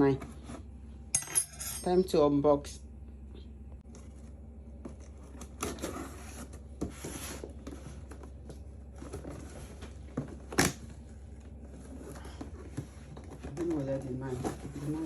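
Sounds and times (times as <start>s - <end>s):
packaging scraping and rustling: 3.9s - 10.6s.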